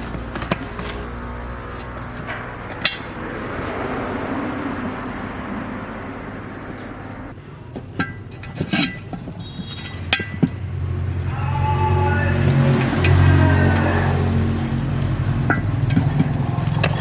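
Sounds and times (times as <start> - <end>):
low engine-like hum: 0.0 - 17.0
metal parts clinking: 7.8 - 10.6.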